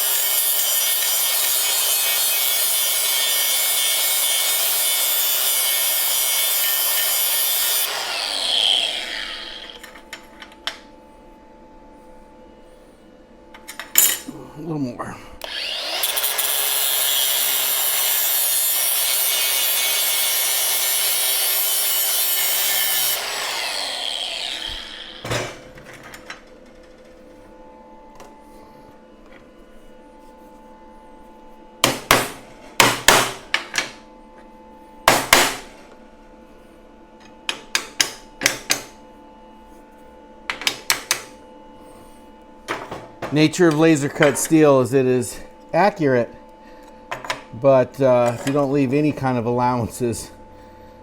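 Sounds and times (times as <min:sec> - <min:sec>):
grinder grinding steel: 0:00.0 - 0:10.1, 0:15.4 - 0:25.6
sharp knocks: 0:31.8 - 0:33.9.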